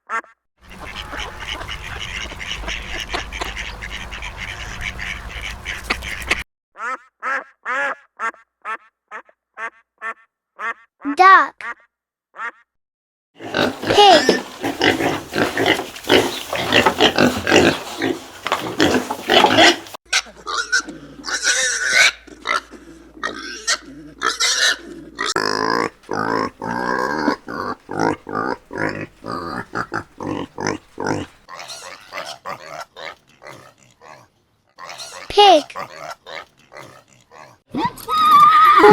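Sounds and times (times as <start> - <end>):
pigs grunting and oinking: 0.7 - 6.4, 13.4 - 37.9.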